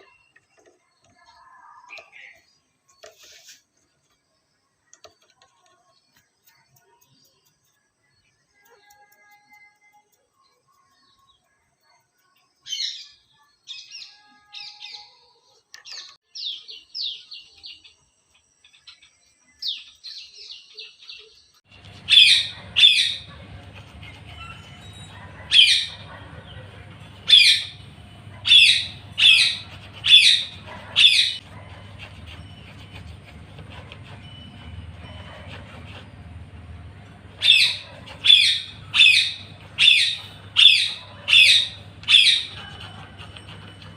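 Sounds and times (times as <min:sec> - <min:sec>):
low hum: 0:21.7 - 0:43.9
parrot chirps: 0:21.8 - 0:26.6.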